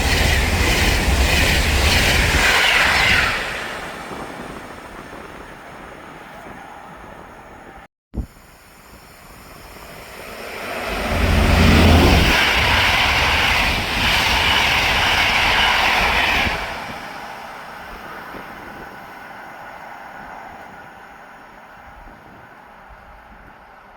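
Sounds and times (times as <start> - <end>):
rail noise and low rumble: 0.0 - 23.9
train passing: 0.0 - 23.9.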